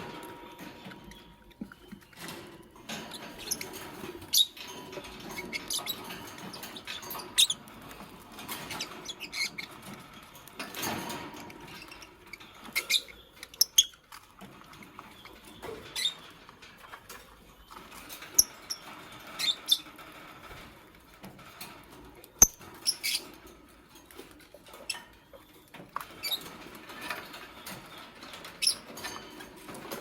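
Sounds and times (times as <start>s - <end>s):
rustling and scratching: 0.0s - 30.0s
lovebirds squeaky chirps: 3.1s - 4.6s, 5.3s - 7.6s, 11.8s - 14.0s, 15.0s - 16.3s, 18.3s - 19.9s, 22.4s - 23.3s, 28.6s - 28.9s.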